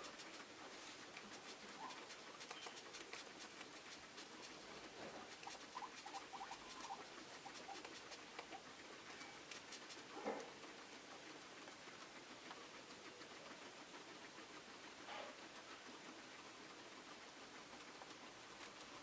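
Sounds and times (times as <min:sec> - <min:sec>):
guinea pigs pattering and rustling: 0:00.0 - 0:19.0
guinea pig squeaks: 0:00.8 - 0:10.0.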